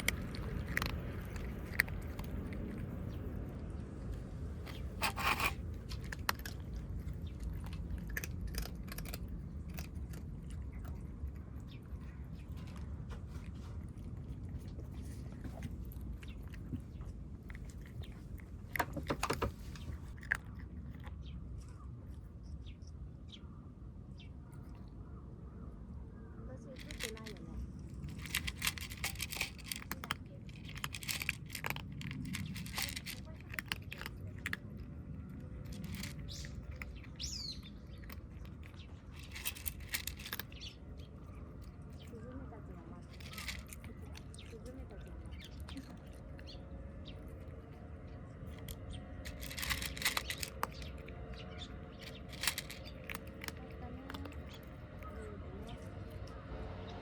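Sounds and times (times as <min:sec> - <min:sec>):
cats chewing food: 0:00.0 - 0:57.0
bird chirp: 0:35.6 - 0:42.2, 0:48.3 - 0:57.0.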